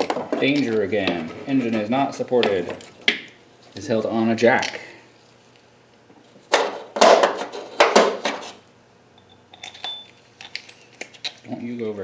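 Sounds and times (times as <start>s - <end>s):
metallic ring: 9.2s - 10.8s
metal hand tools clattering: 9.5s - 10.8s.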